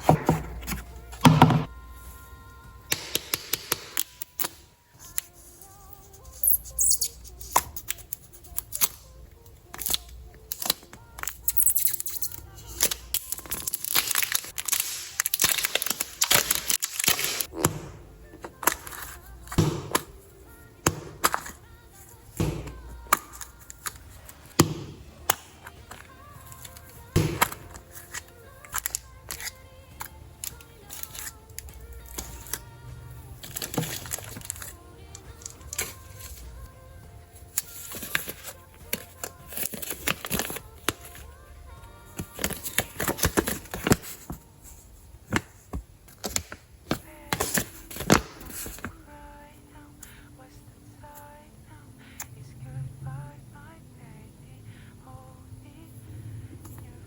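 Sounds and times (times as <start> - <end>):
quiet background music: 0.0 - 57.0
plastic crinkling and tearing: 9.8 - 17.5, 27.7 - 29.6, 33.4 - 34.8, 37.5 - 41.2.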